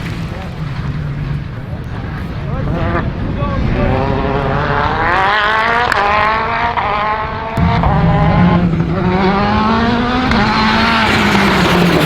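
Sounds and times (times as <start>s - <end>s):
rally car engine at full throttle: 0.0s - 12.0s.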